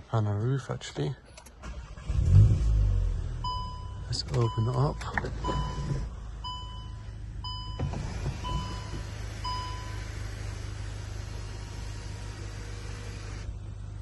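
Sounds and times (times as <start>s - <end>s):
car warning chime dinging: 3.4s - 10.2s
sunroof motor humming: 7.8s - 14.0s.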